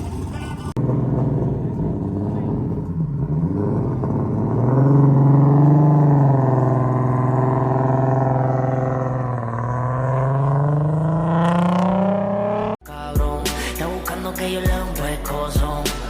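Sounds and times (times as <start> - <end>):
car engine revving high: 0.8 - 12.8.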